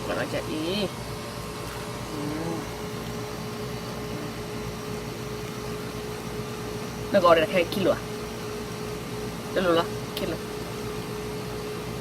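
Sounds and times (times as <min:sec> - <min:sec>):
machine hum: 0:00.0 - 0:12.0
faint voice: 0:02.1 - 0:02.7.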